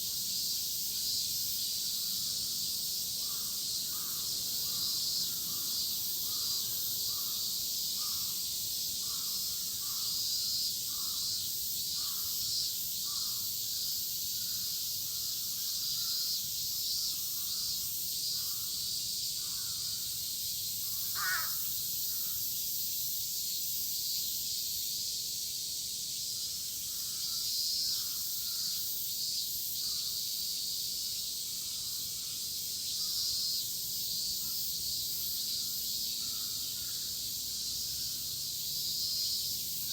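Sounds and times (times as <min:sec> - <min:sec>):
cicadas droning: 0:00.0 - 0:39.9
crow cawing: 0:21.1 - 0:21.7.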